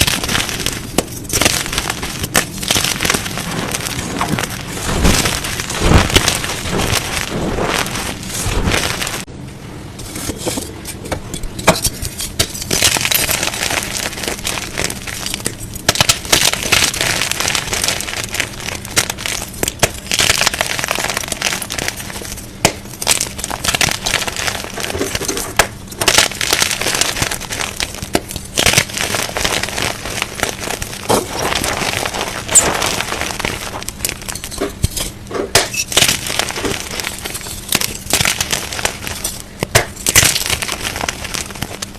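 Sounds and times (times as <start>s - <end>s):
chalk blocks crunching: 0.0s - 9.3s, 11.6s - 41.9s.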